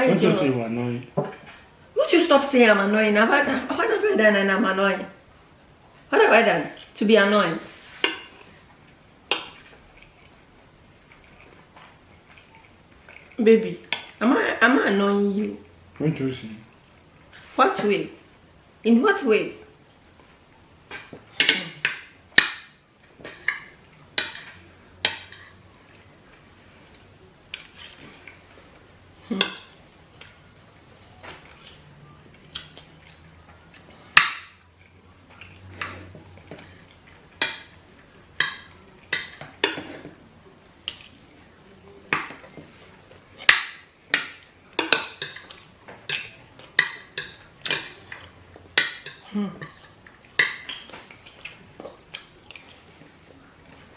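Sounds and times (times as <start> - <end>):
spoons clinking on plates: 20.9 - 25.6, 29.3 - 30.4, 35.6 - 40.2, 43.4 - 51.2.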